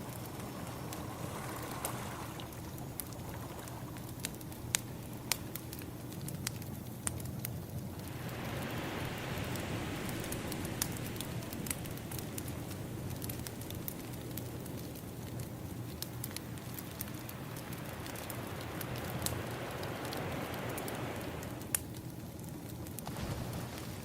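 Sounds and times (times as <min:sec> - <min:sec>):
ocean waves: 0:00.0 - 0:05.6, 0:07.9 - 0:14.6, 0:16.7 - 0:21.8, 0:23.0 - 0:24.0
wood fire crackling: 0:00.0 - 0:24.0.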